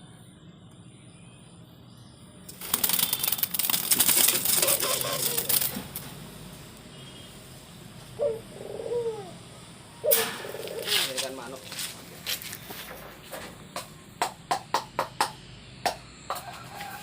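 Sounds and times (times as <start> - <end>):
pigeon wings fluttering in cage: 2.5 - 6.2, 10.1 - 13.5
pigeon cooing: 4.0 - 6.0, 8.1 - 11.5.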